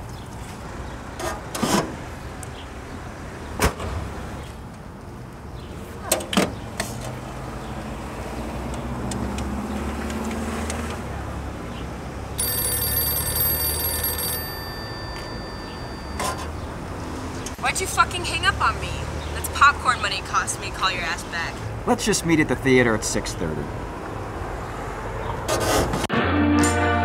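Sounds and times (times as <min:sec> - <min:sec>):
passing car rumble: 0:06.6 - 0:12.4
payphone ringing: 0:12.4 - 0:16.6.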